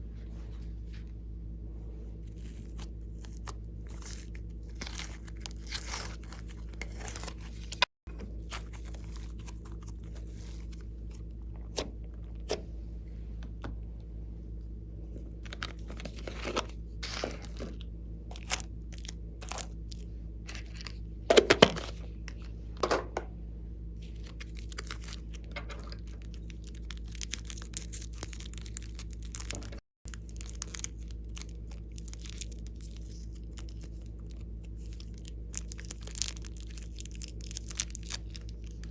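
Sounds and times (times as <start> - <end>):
steady low hum: 0.0 - 38.9
slime crackling and popping: 26.3 - 38.9.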